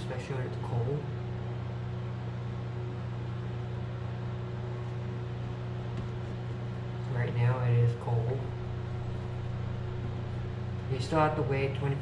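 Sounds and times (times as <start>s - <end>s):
low machine hum with hiss: 0.0s - 12.0s.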